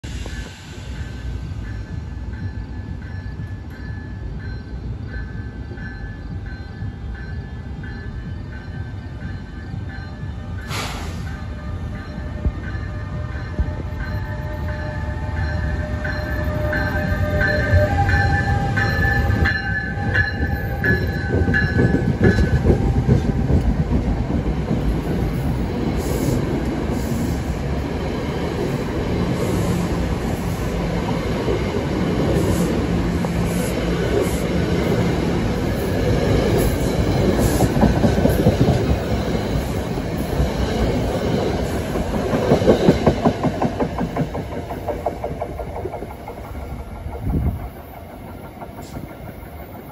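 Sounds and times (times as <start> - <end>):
locomotive whine: 0.0 - 49.9
train wheels on rails: 0.0 - 49.9.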